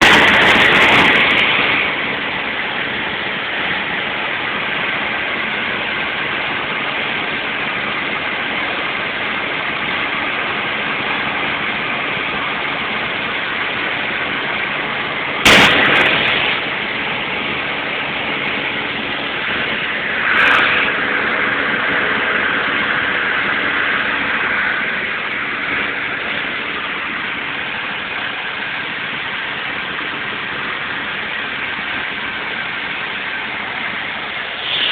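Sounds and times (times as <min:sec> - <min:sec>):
road noise: 0:00.0 - 0:34.9
vehicle engine running: 0:00.0 - 0:34.9
sharp knock: 0:15.4 - 0:16.6.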